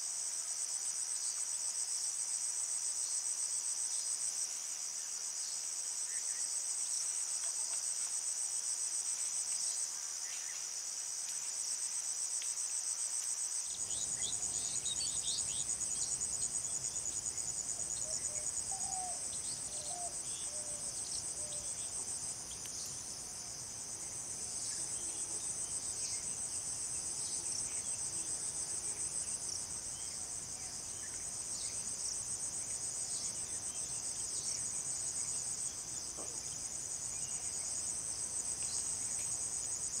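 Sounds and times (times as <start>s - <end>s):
insects trilling: 13.7s - 40.0s.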